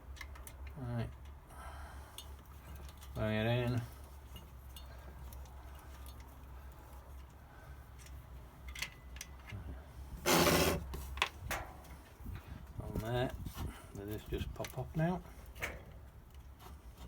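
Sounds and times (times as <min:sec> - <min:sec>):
loud metal scrape: 0:10.2 - 0:10.9.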